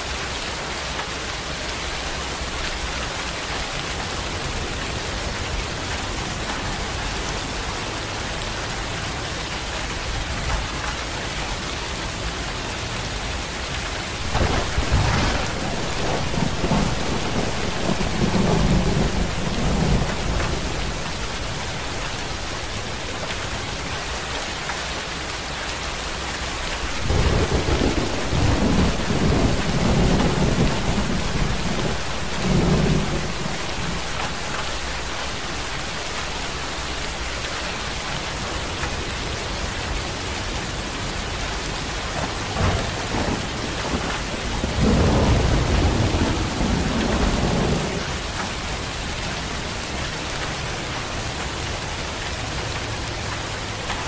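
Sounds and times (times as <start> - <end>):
steady rain: 0.0 - 54.0
thunder rumbling: 14.2 - 24.3, 26.5 - 37.4, 41.8 - 48.4.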